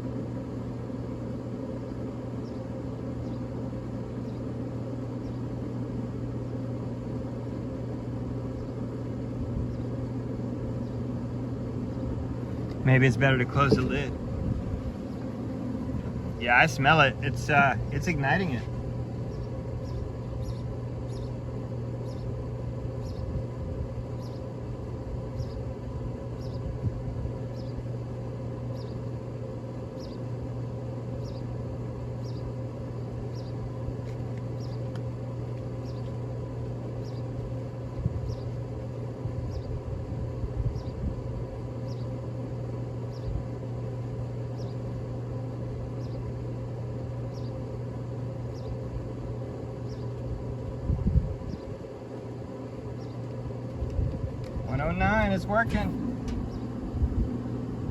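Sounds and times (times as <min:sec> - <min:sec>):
grill fan humming: 0:00.0 - 0:57.9.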